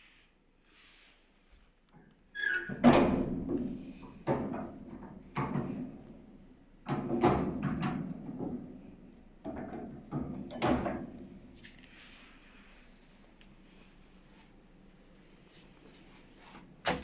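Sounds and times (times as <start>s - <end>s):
sharp knocks and clanks: 2.7s - 6.1s, 6.8s - 8.8s.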